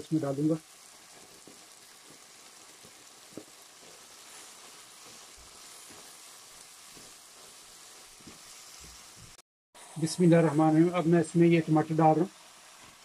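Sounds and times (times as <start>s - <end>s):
faint sizzle of frying: 0.0s - 13.0s
spatula tapping pan: 1.4s - 6.2s.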